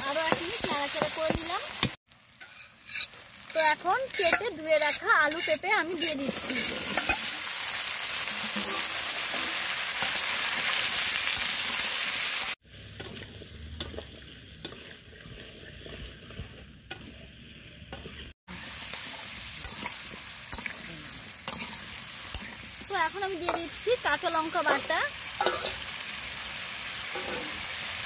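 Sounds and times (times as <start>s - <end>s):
food sizzling in a pan: 0.0s - 13.3s, 18.5s - 28.0s.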